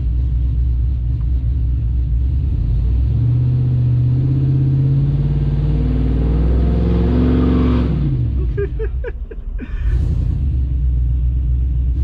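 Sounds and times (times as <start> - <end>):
loud engine revving: 2.1 - 8.6, 9.9 - 12.0.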